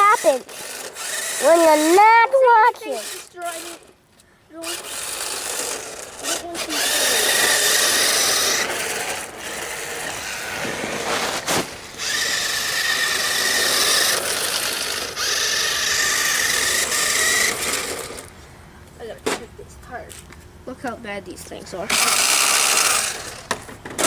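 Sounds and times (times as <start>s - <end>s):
toy car motor whine: 0.0s - 3.9s, 4.6s - 18.3s, 21.9s - 23.7s
tires sliding on ground: 8.6s - 12.0s.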